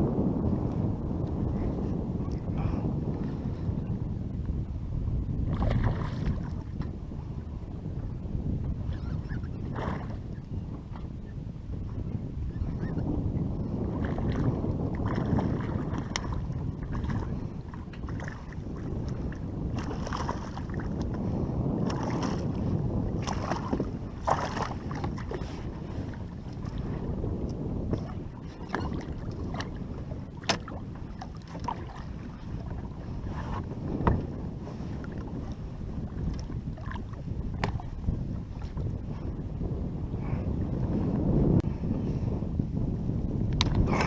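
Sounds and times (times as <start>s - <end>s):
wind on microphone: 0.0s - 44.0s.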